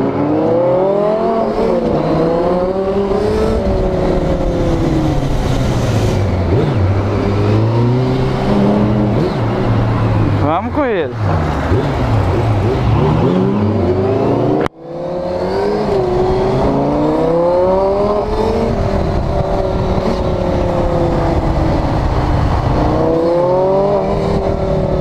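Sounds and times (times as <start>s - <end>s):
motorcycle engine revving: 0.0s - 10.6s, 11.2s - 25.0s
sports car engine accelerating: 11.2s - 25.0s.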